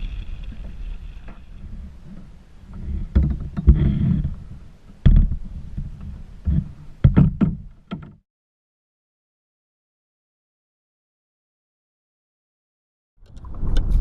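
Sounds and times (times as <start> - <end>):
wind rumble on microphone: 0.0 - 7.7, 13.2 - 14.0
knocks and thumps: 3.0 - 4.4, 5.0 - 8.2.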